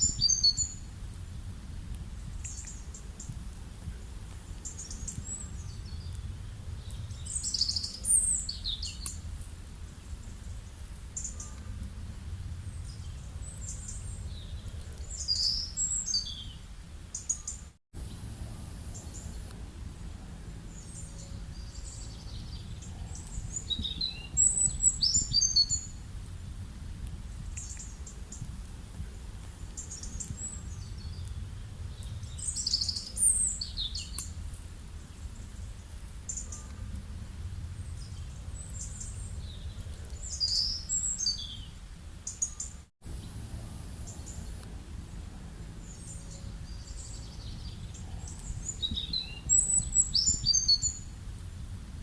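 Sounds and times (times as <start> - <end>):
birds chirping and trilling: 0.0 - 0.9, 4.5 - 11.8, 12.5 - 19.6, 20.5 - 26.0, 29.6 - 34.4, 37.8 - 51.1
low outdoor rumble: 0.0 - 17.3, 18.0 - 42.4, 43.0 - 52.0.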